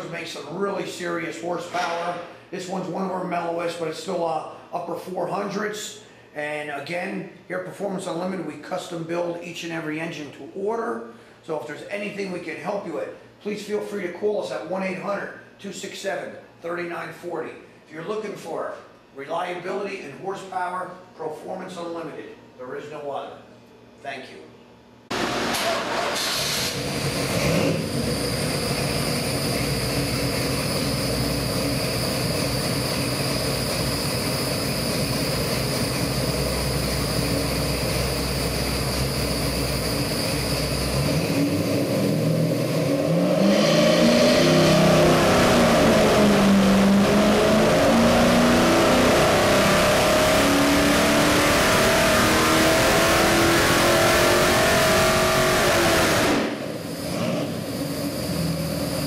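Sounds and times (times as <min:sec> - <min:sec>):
engine idling and revving: 0:25.1 - 0:59.0.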